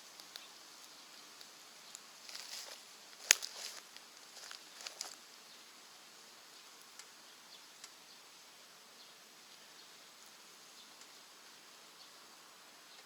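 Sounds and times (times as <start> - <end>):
fire crackling pops: 0.0 - 5.2
wood fire hissing: 0.0 - 6.2.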